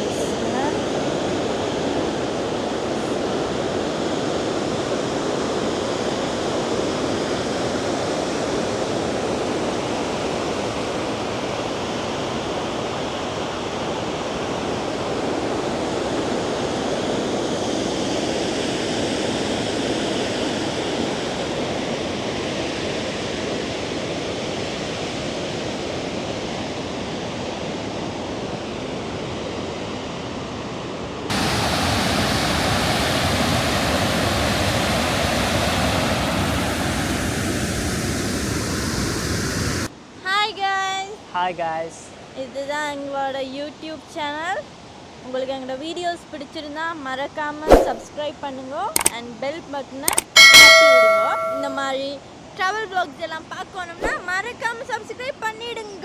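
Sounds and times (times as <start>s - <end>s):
waterfall rushing: 31.3s - 36.8s.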